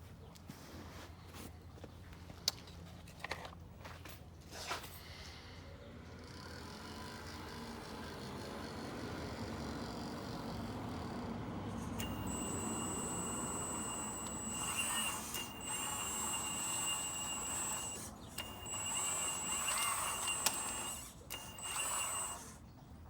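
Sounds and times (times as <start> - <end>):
hydraulic pump whine: 6.3 - 22.8.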